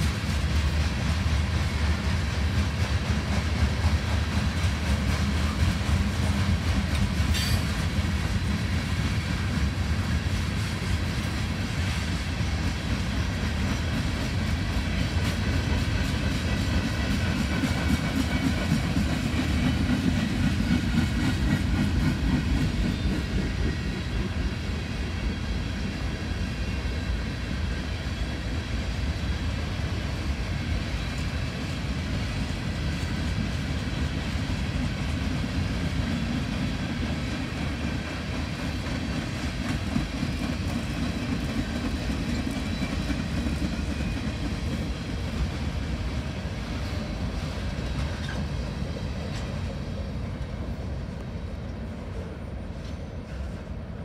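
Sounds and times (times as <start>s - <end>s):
freight train cars rumbling past: 0.0s - 54.0s.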